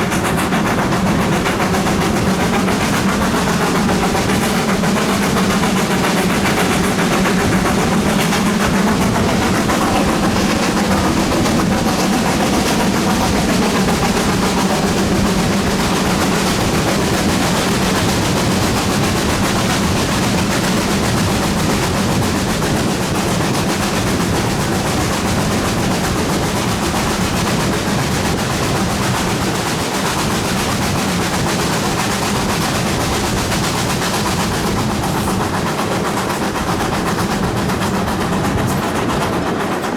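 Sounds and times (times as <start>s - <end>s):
steam locomotive exhaust beats: 0.0s - 39.9s.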